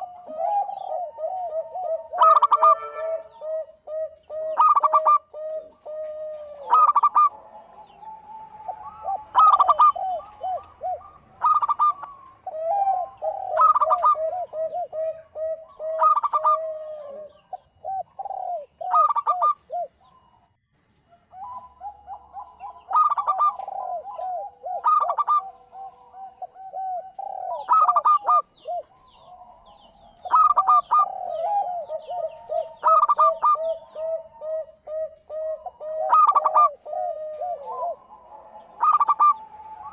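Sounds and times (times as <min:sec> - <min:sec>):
dove cooing: 0:00.0 - 0:20.5, 0:21.1 - 0:39.9.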